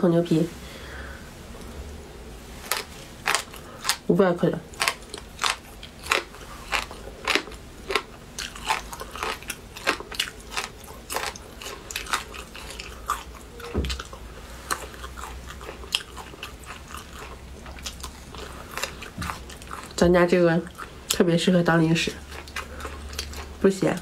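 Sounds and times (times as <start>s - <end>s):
crunchy snack chewing: 2.6s - 4.1s, 4.7s - 20.0s, 22.1s - 24.0s.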